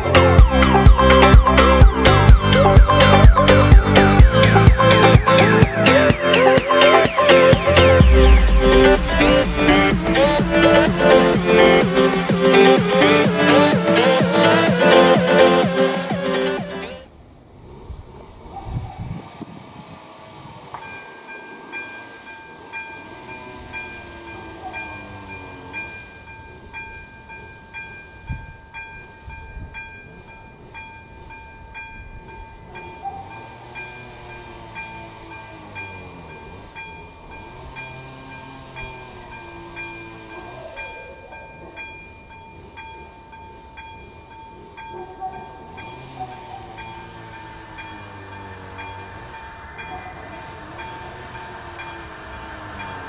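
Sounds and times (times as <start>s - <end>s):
level crossing warning bell: 0.0s - 16.9s, 20.8s - 53.0s.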